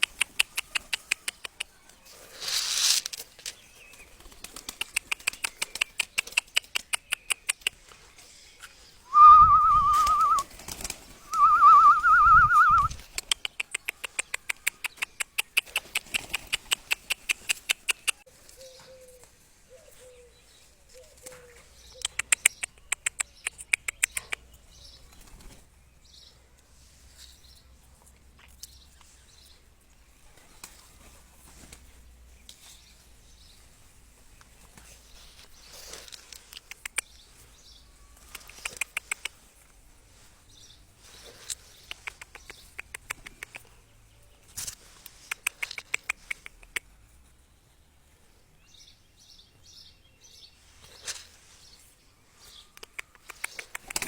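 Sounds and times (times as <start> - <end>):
pigeon wings flapping: 0.0 - 7.8, 9.2 - 18.2, 41.4 - 43.7, 53.2 - 54.0
loud wavering whistle: 9.1 - 10.4, 11.3 - 13.0.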